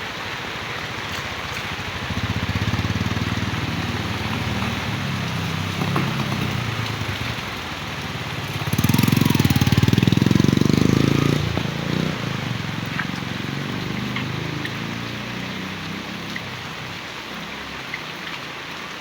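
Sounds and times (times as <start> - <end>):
heavy rain: 0.0 - 19.0
vehicle engine running: 0.3 - 15.2.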